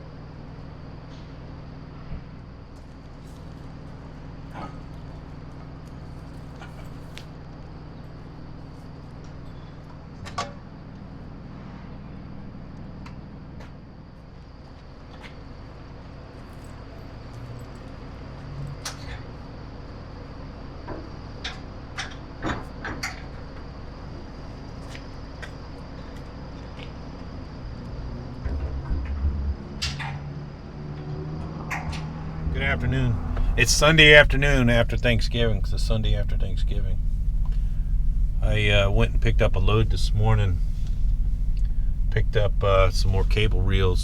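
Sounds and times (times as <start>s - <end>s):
steady low hum: 32.2s - 44.0s.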